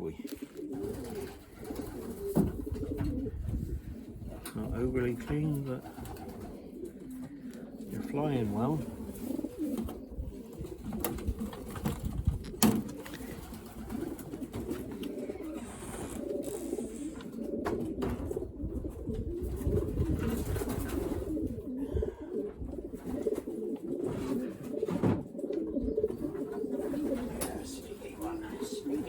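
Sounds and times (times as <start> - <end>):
pigeons cooing: 0.0 - 29.0.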